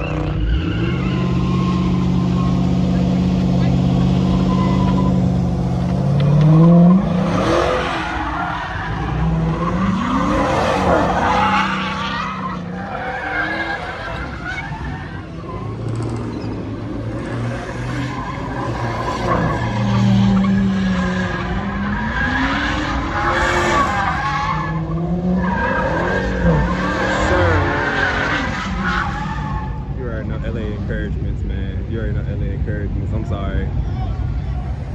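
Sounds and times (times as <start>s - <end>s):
tyres squealing: 0.0s - 16.9s
car engine revving: 0.0s - 34.9s.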